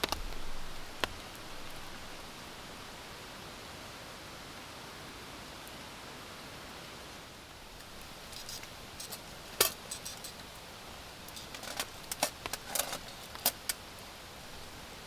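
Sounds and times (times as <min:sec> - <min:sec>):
rain hiss: 0:00.0 - 0:15.0
running water: 0:07.4 - 0:15.0
clinks of small hard objects: 0:07.8 - 0:10.5, 0:11.3 - 0:13.8.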